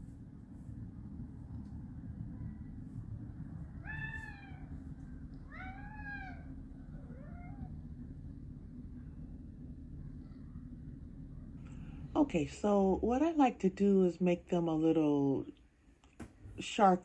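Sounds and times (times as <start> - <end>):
steady low hum: 0.0 - 17.0
cat meowing: 3.8 - 4.8, 5.4 - 7.7.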